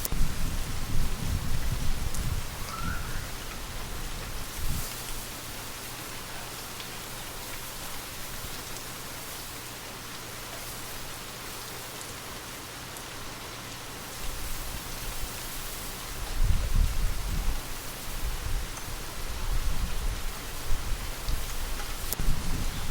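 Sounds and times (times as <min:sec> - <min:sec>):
wind gusts: 0:00.0 - 0:05.9, 0:14.2 - 0:22.9
light rain falling: 0:00.0 - 0:22.9.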